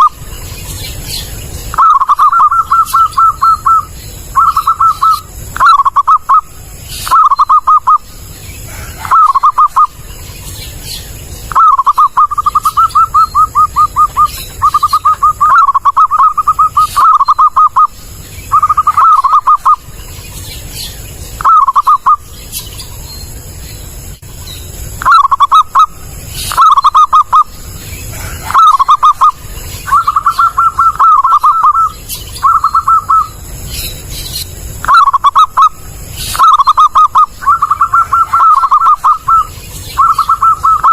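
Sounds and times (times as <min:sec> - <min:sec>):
low steady hum: 0:00.0 - 0:40.9
dove cooing: 0:01.7 - 0:10.0, 0:11.5 - 0:19.9, 0:21.4 - 0:22.2, 0:25.0 - 0:33.4, 0:34.8 - 0:40.9.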